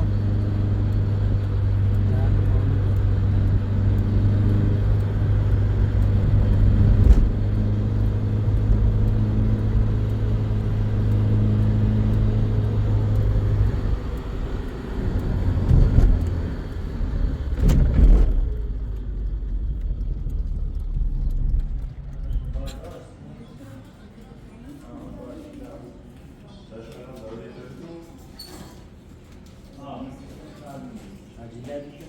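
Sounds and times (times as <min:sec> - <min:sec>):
vehicle engine humming: 0:00.0 - 0:23.2
uneven engine rumble: 0:00.0 - 0:23.7.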